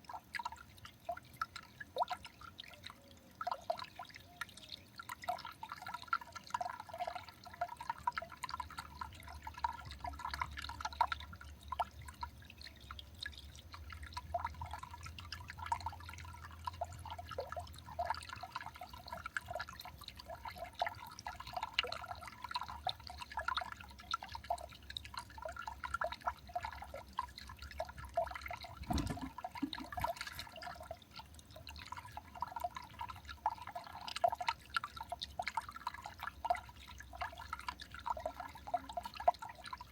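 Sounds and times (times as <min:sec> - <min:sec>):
water dripping: 0:00.0 - 0:39.9.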